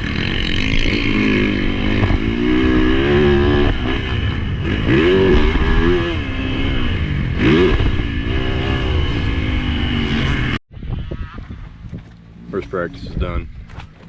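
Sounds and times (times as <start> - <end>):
motocross bike engine revving: 0.0 - 10.6
wind rumble: 0.0 - 14.0.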